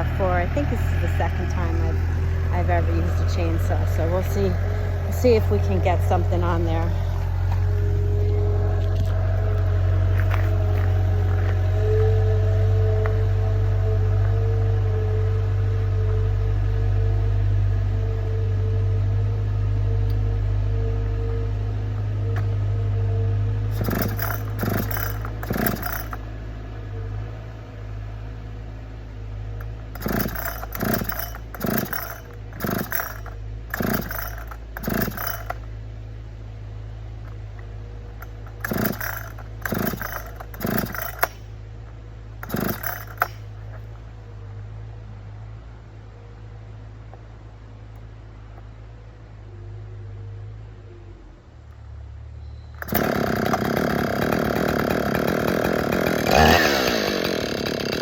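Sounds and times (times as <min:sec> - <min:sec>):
chainsaw loud bursts: 0:00.0 - 0:08.0, 0:23.7 - 0:26.2, 0:29.9 - 0:35.6, 0:38.4 - 0:41.5, 0:42.4 - 0:43.5, 0:52.8 - 0:58.0
chainsaw idling: 0:00.0 - 0:16.8, 0:23.7 - 0:26.3, 0:29.6 - 0:35.7, 0:38.2 - 0:41.6, 0:42.3 - 0:43.9, 0:52.8 - 0:58.0.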